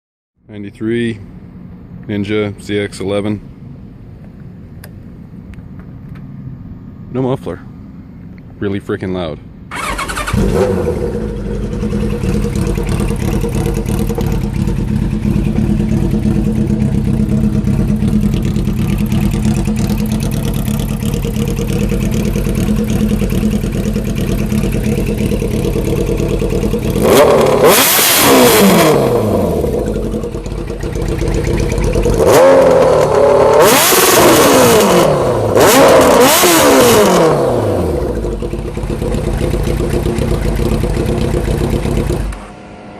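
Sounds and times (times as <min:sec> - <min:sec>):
motorcycle engine idling and revving: 0:09.6 - 0:42.9.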